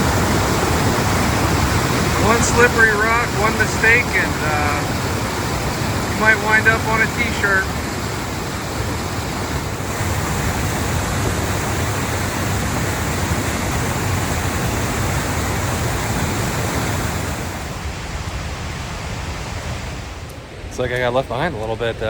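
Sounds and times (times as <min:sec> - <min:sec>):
waterfall rushing: 0:00.0 - 0:20.3.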